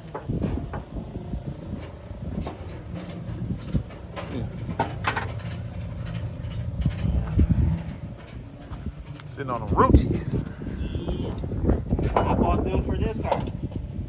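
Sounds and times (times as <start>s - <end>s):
car engine idling: 0.0s - 12.1s.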